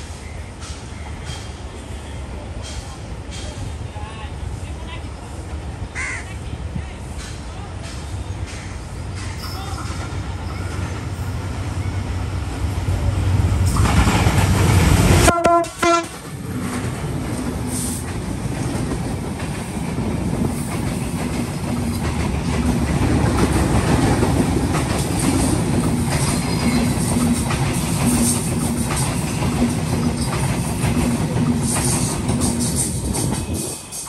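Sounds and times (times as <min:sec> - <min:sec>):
train horn blast: 0:15.2 - 0:16.2.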